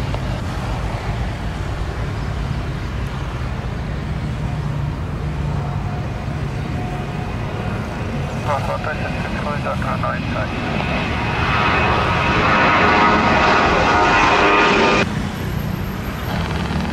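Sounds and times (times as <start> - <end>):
airliner engines rumbling: 0.0 - 16.9
faint steady whine: 5.7 - 15.0.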